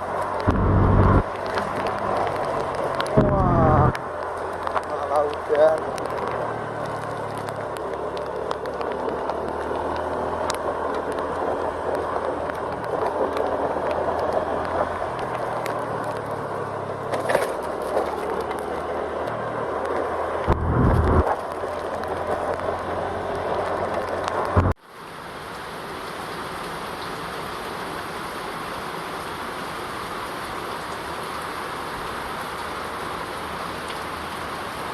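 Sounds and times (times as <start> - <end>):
vehicle engine hum: 0.0 - 24.8
brief low rumble: 0.5 - 1.2, 20.5 - 21.3
tyre and wind noise: 5.8 - 24.8.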